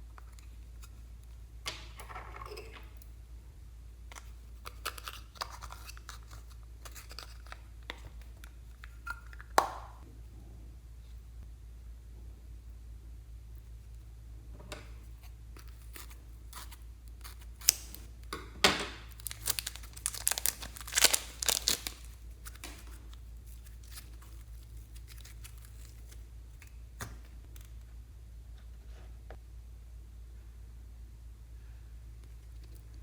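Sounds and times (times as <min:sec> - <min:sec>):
slime crackling and tearing: 0:16.0 - 0:18.1, 0:19.1 - 0:26.2.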